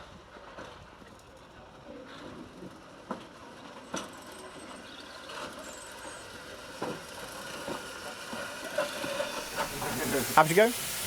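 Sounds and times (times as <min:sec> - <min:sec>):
steam locomotive hissing: 0:05.4 - 0:11.0.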